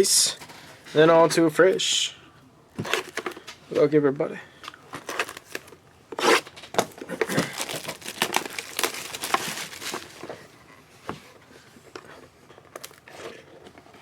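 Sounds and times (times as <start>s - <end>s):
plastic wrapping crinkling and tearing: 4.9s - 10.4s.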